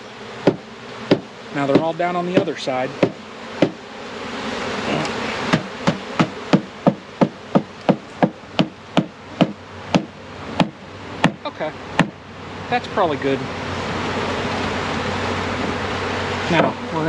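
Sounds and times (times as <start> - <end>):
bees humming: 0.0 - 17.0
sharp taps on bee cage: 0.4 - 3.8, 5.0 - 11.4, 12.0 - 12.2.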